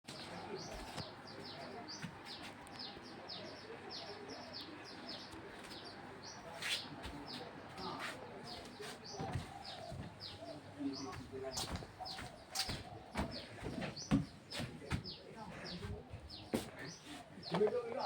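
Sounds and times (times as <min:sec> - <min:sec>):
small birds chirping: 0:00.1 - 0:18.0.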